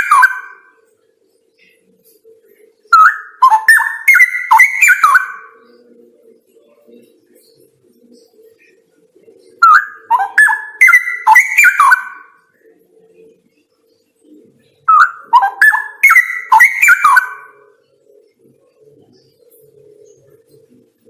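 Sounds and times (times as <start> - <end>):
bird singing rapid notes: 0.0 - 0.7, 2.9 - 5.6, 9.6 - 12.4, 14.8 - 17.8.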